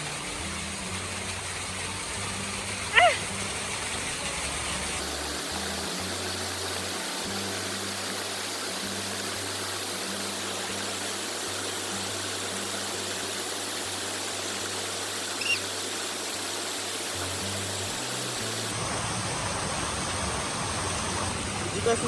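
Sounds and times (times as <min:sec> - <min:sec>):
waterfall rushing: 0:00.0 - 0:18.9
high chirp: 0:15.2 - 0:16.2.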